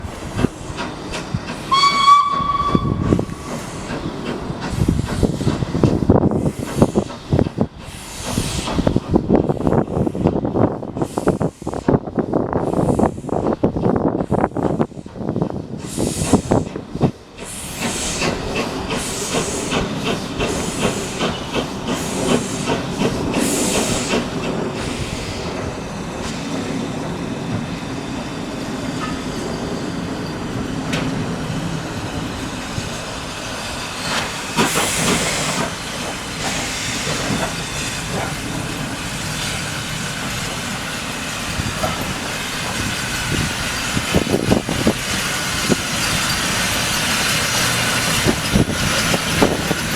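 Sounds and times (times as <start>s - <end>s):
wheels clicking over rail joints: 0.0s - 10.4s, 41.5s - 49.9s
steam locomotive exhaust puffs: 0.0s - 27.8s, 30.4s - 49.9s
loud burst of steam hiss: 17.4s - 26.6s, 32.7s - 49.9s.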